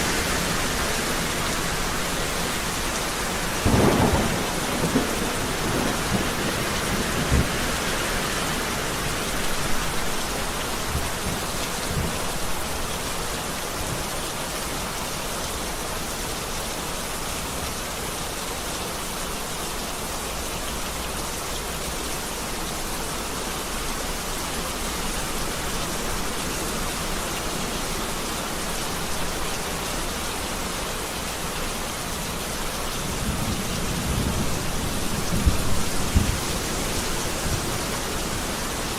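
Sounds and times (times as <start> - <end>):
heavy rain falling: 0.0 - 38.9
thunder rumbling: 3.6 - 8.1, 33.1 - 38.8.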